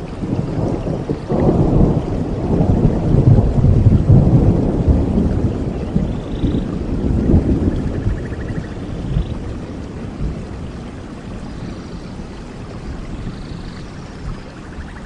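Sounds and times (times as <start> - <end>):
steady rainfall: 0.0 - 15.0
thunder rumbling: 0.0 - 15.0.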